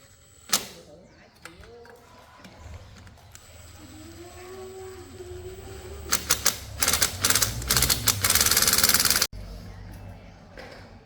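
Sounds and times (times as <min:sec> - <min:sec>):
rapid mechanical clattering: 0:05.5 - 0:09.3.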